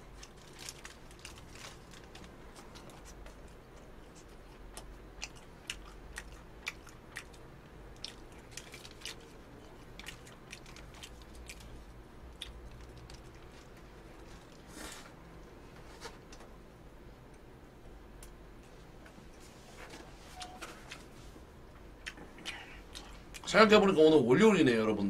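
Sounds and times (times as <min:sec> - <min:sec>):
person chewing: 0:00.1 - 0:14.8, 0:22.0 - 0:23.5.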